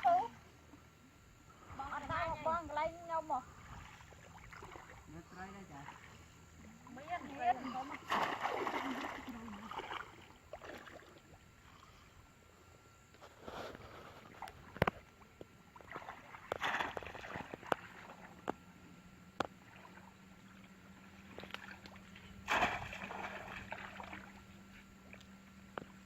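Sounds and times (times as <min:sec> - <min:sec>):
water sloshing and splashing: 0:01.6 - 0:12.0, 0:13.5 - 0:18.7, 0:19.3 - 0:26.0.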